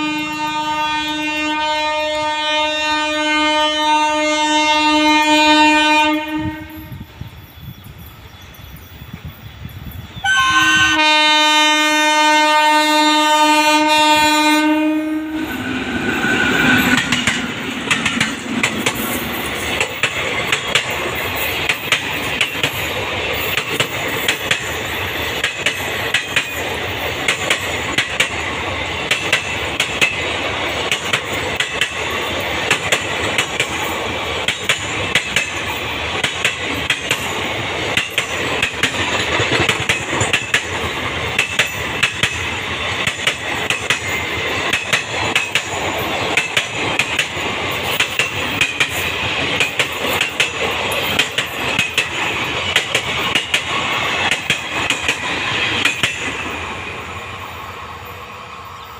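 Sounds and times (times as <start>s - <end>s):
electric locomotive horn blast: 0.0s - 7.0s, 10.2s - 17.0s
train wheels clickety-clack: 15.5s - 58.2s.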